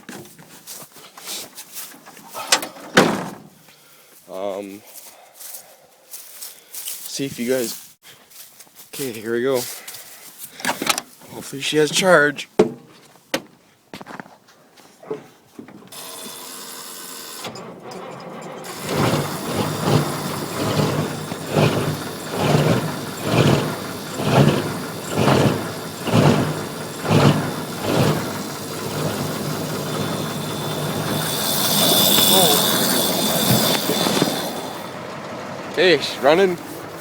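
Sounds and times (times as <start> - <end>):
diesel engine cranking: 15.8 - 37.0
diesel engine running steadily: 17.5 - 37.0.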